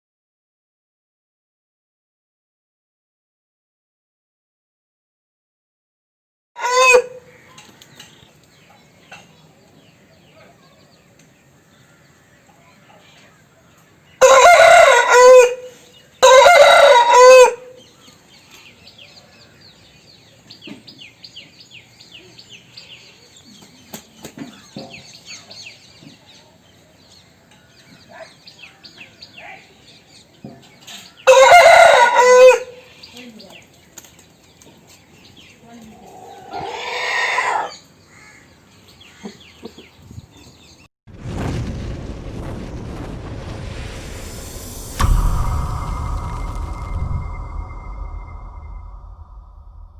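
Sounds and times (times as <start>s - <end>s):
rooster crowing: 6.6s - 7.2s, 14.2s - 17.7s, 31.3s - 32.7s.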